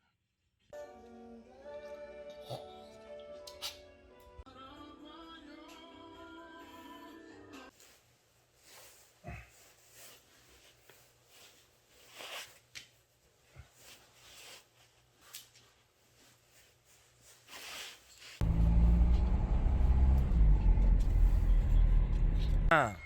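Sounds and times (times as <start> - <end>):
faint clicks and rustles: 7.8 - 18.4
loud low machine hum: 18.4 - 22.7.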